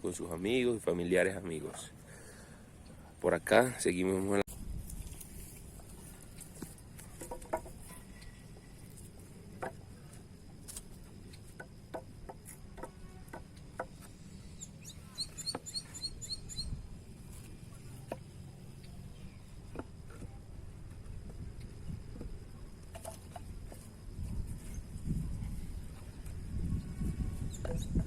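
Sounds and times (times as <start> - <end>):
high insect whine: 3.6 - 28.0
bird chirping: 14.2 - 16.8.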